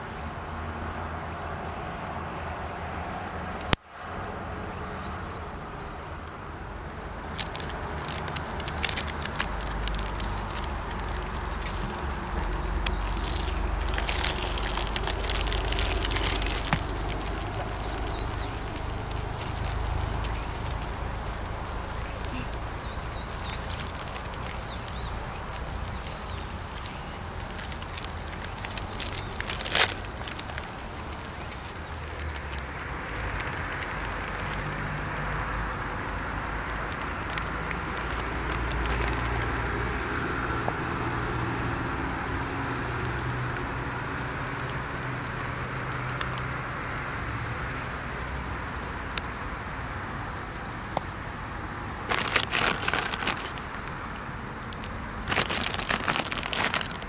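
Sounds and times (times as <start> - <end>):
hot oil sizzling and crackling: 6.4 - 39.9.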